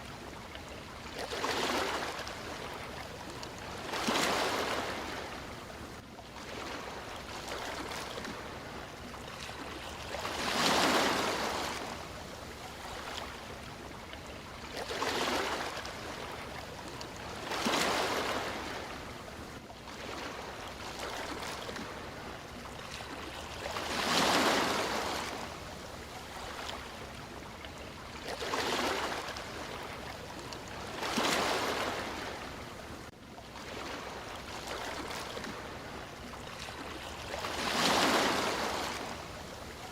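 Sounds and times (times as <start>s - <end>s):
sea waves washing onto shore: 6.3s - 13.7s, 28.3s - 39.9s.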